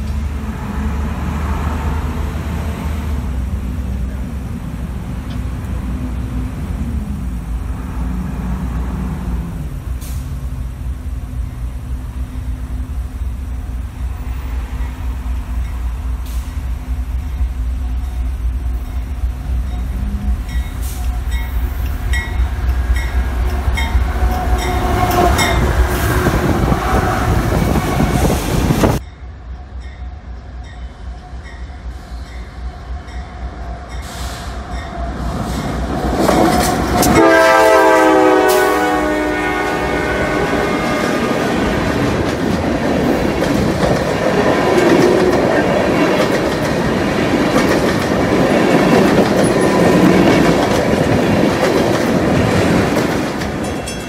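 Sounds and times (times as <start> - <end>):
diesel locomotive running: 0.0 - 54.0
locomotive horn: 23.0 - 29.0, 36.4 - 41.9
train wheels clickety-clack: 34.0 - 37.3, 41.1 - 54.0.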